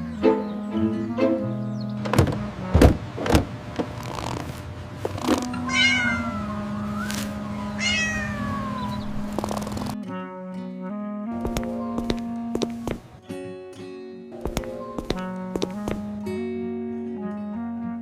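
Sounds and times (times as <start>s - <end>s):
background music: 0.0s - 3.0s, 10.0s - 18.0s
cat meowing: 5.5s - 10.0s.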